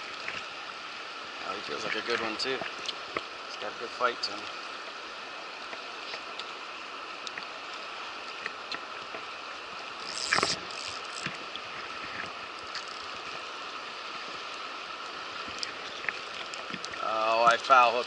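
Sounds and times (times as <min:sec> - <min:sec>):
river water rushing over rocks: 0:00.0 - 0:18.0
small ticks: 0:10.0 - 0:13.4.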